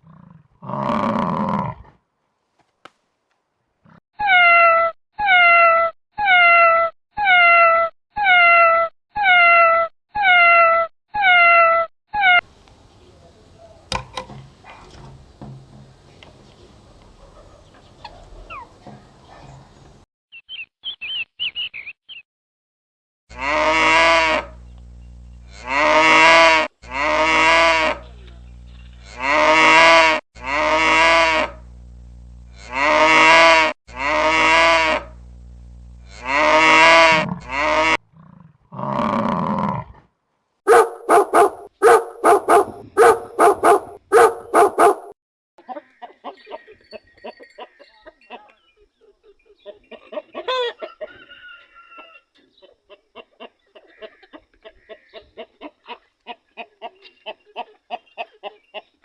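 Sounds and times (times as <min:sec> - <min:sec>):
cow mooing: 0:13.9 - 0:19.8, 0:23.3 - 0:24.6, 0:25.4 - 0:28.4, 0:29.0 - 0:31.6, 0:32.5 - 0:35.2, 0:36.1 - 0:39.8
dog barking: 0:16.7 - 0:19.9, 0:40.7 - 0:45.2.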